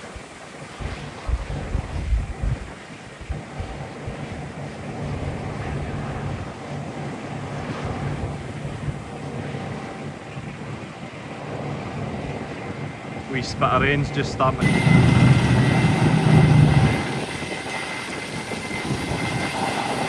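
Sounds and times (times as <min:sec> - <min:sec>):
wind rumbling on microphone: 0:00.0 - 0:20.0
farm machinery engine running: 0:13.3 - 0:20.0.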